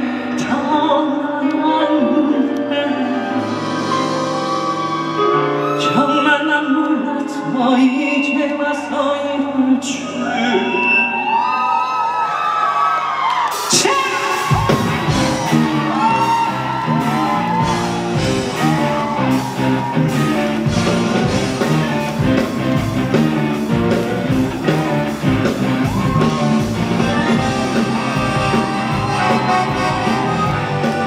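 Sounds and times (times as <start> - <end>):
sliding lead melody: 0.0 - 6.8, 14.4 - 31.0
live pop music: 0.0 - 12.6, 13.4 - 31.0
steady drum beat: 13.5 - 31.0.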